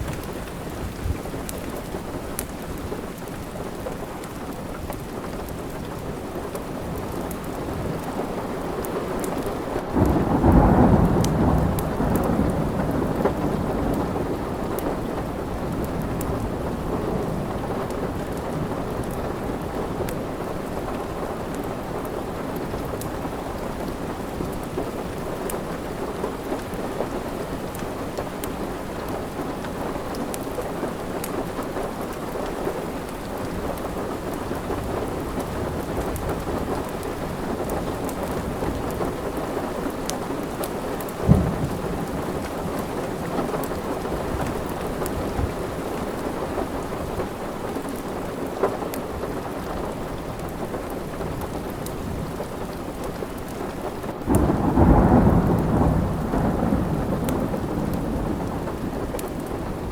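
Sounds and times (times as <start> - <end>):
fireplace crackling and popping: 0.0 - 9.8, 17.8 - 54.4, 57.3 - 59.9
steady rain: 0.0 - 59.9
thunderclap rumbling: 9.9 - 20.1, 34.2 - 47.3, 54.3 - 59.9.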